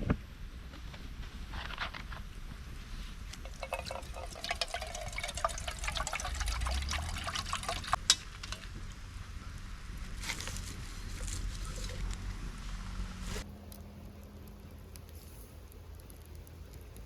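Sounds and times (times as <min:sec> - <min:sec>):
water splashing and trickling: 0:03.4 - 0:08.8.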